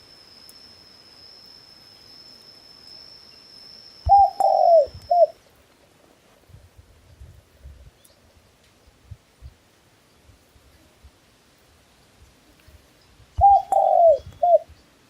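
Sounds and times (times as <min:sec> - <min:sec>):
dove cooing: 0:04.1 - 0:05.4, 0:13.4 - 0:14.7.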